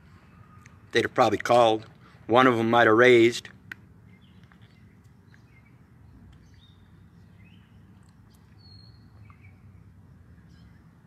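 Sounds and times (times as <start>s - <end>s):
faint bird chirps: 0.1s - 0.9s, 4.1s - 11.0s.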